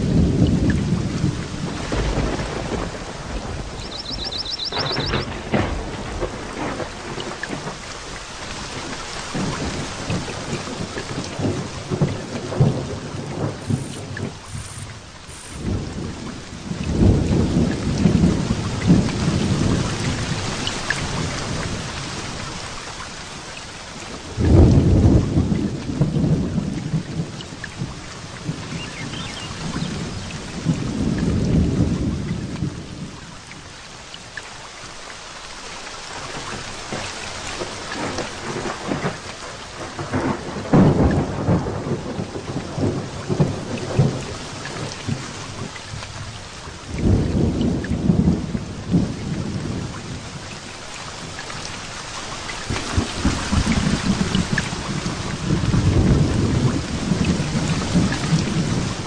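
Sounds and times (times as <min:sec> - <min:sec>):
loud thunder clap: 0:00.0 - 0:07.8
thunder rumbling: 0:00.0 - 0:07.9, 0:08.7 - 0:22.4, 0:24.1 - 0:33.1, 0:37.6 - 0:50.5, 0:52.6 - 0:59.0
heavy rain: 0:00.0 - 0:59.0.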